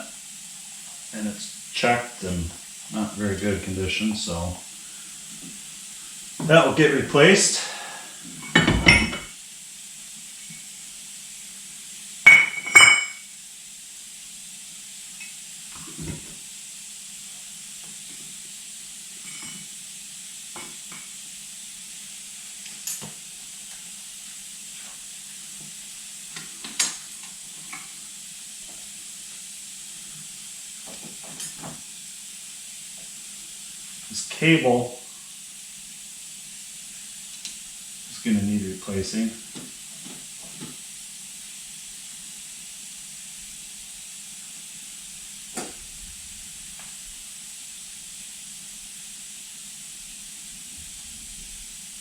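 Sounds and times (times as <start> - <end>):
steady hiss: 0.0 - 52.0
metal tools clinking: 8.4 - 9.3.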